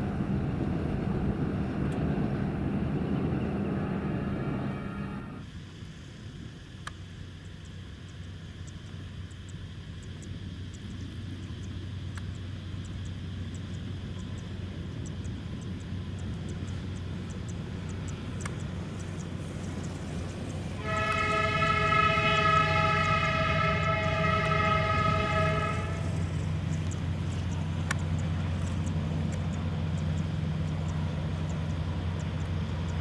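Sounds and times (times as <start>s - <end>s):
diesel locomotive engine rumble: 0.0s - 33.0s
train horn blast: 3.6s - 5.4s, 20.8s - 26.3s.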